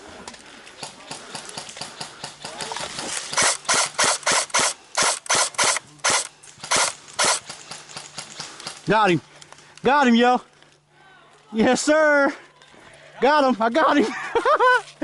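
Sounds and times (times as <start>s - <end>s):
airsoft rifle shots: 1.2s - 8.3s.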